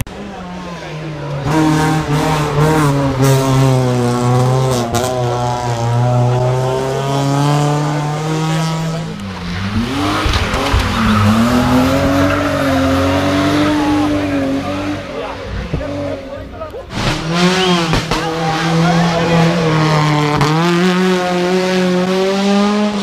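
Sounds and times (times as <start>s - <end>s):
rally car engine at high revs: 0.1s - 23.0s.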